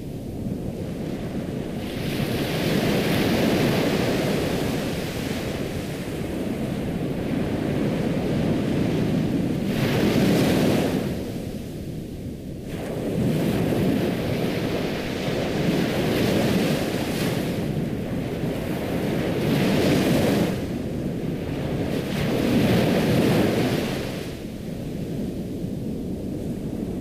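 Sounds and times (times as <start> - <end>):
ocean waves washing onto shore: 0.0 - 27.0.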